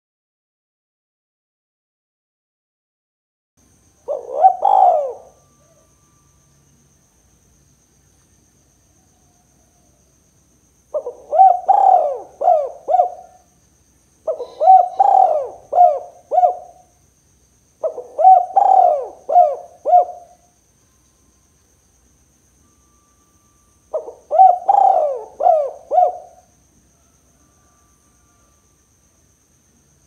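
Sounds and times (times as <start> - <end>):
dove cooing: 4.0 - 6.0, 10.9 - 13.5, 14.2 - 16.9, 17.8 - 20.4, 23.9 - 26.5.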